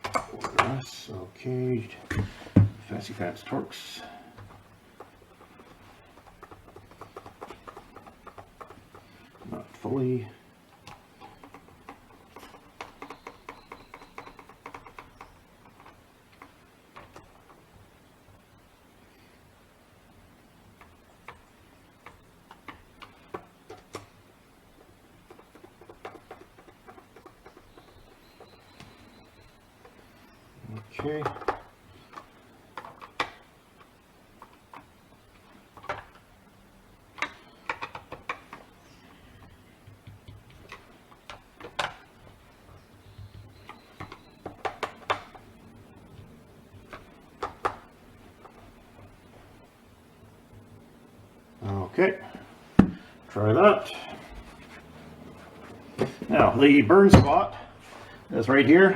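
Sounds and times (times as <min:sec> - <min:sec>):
tools and plastic housing clicking: 0:37.2 - 0:38.7.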